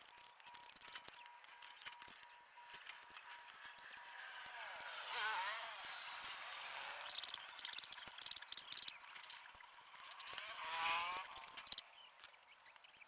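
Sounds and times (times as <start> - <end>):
cricket chirping: 7.1 - 9.0
rising and falling call: 7.1 - 9.0.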